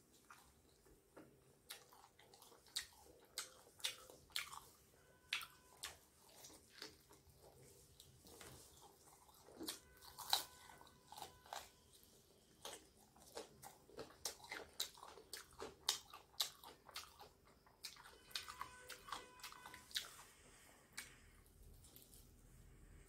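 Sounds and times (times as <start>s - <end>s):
chewing with clicks and crackles: 0.0s - 22.3s.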